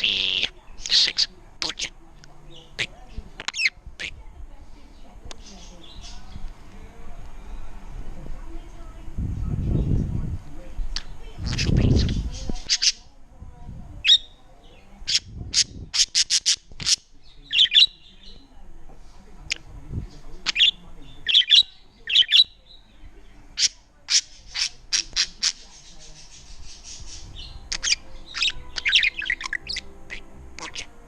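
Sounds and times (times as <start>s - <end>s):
budgerigar chirping and squawking: 0.0s - 1.9s, 2.6s - 3.8s, 11.0s - 13.1s, 14.0s - 14.4s, 15.0s - 18.4s, 20.4s - 22.8s, 23.6s - 30.9s.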